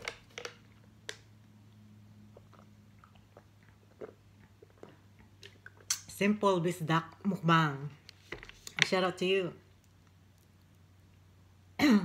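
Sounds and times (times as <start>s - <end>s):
chewing and mouth sounds: 0.0s - 6.1s
low steady hum: 0.0s - 12.0s.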